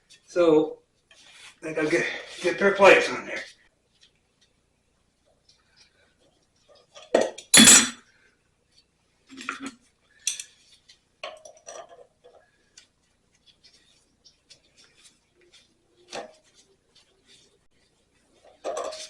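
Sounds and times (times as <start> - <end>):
metal hand tools clattering: 7.6 - 8.0.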